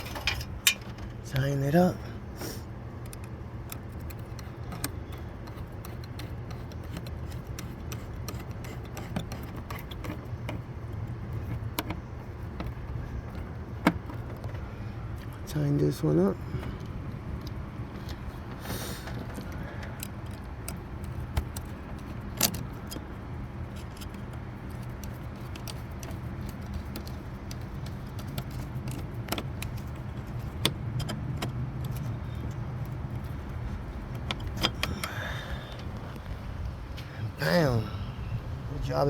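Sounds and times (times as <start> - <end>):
hand tools clinking: 0.0 - 1.2
steady low hum: 0.0 - 39.0.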